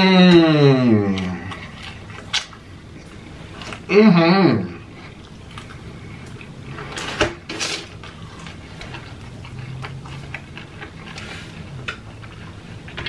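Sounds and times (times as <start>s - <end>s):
faint low hum: 0.0s - 13.0s
person chewing: 4.8s - 7.0s, 7.9s - 13.0s.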